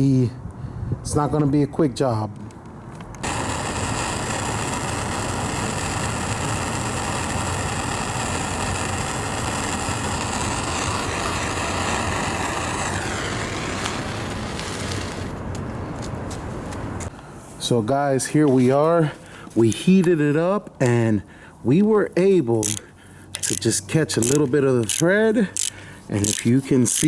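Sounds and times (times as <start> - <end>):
gas torch hissing: 3.2 - 15.4, 22.6 - 27.0.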